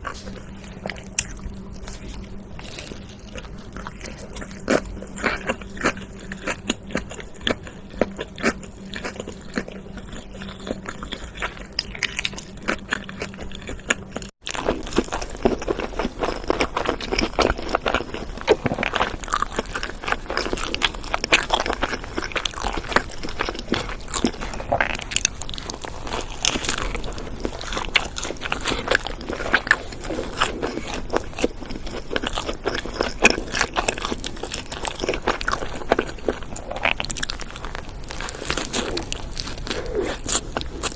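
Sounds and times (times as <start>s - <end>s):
low hum: 0.0s - 16.5s
chewing and crunching food: 0.0s - 40.9s.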